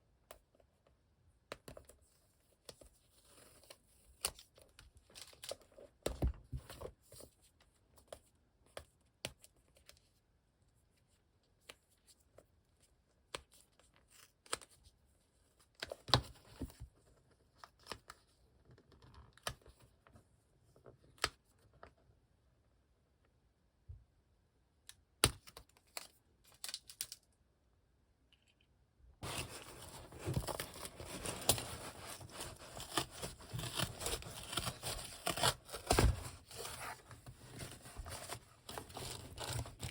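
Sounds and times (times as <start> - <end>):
packaging taps and rustles: 29.2 - 39.9
packaging tearing and crinkling: 29.2 - 39.9.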